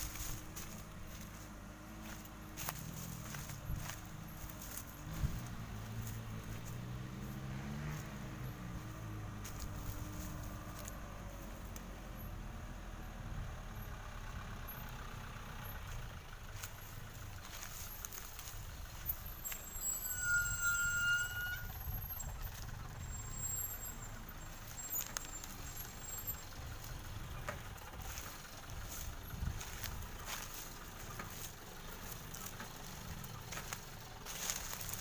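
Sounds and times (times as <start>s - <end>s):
diesel truck engine rumbling: 0.0s - 35.0s
high brake squeal: 19.0s - 26.7s.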